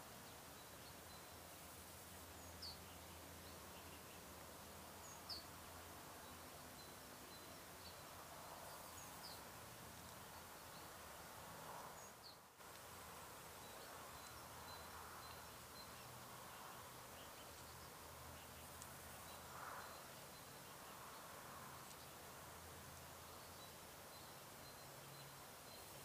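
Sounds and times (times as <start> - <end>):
steady low hiss: 0.0 - 26.0
distant bird chirps: 13.5 - 22.2.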